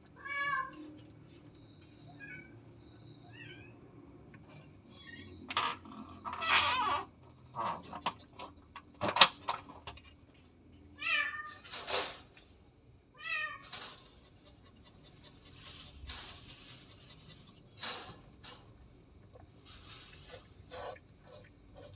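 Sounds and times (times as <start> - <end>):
cat meowing: 13.2 - 13.7.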